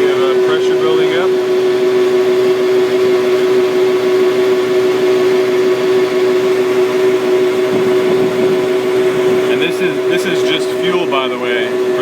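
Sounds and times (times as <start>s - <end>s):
truck fuel pump humming: 0.0s - 12.0s.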